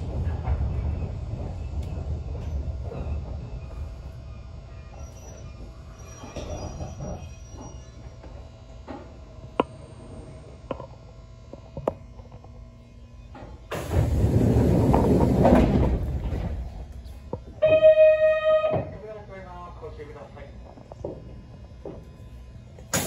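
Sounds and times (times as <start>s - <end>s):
train low hum: 0.0s - 23.0s.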